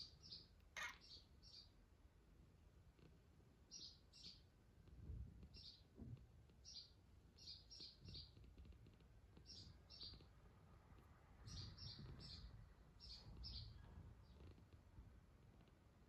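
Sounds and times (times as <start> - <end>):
small bird chirping: 0.0 - 1.8, 3.6 - 4.5, 6.6 - 8.7, 9.4 - 10.4, 11.4 - 14.6.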